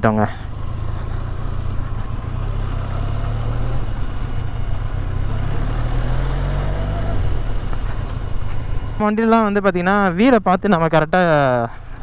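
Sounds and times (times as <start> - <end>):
motorcycle engine droning at low revs: 0.0 - 9.0.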